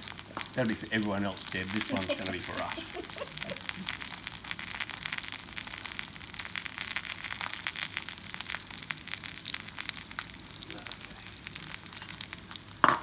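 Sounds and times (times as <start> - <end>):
potatoes and eggs frying: 0.0 - 13.0.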